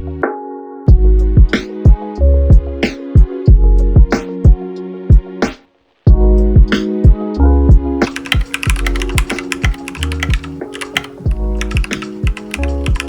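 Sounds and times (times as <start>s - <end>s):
background music with a beat: 0.0s - 13.0s
mechanical keyboard typing: 8.1s - 13.0s.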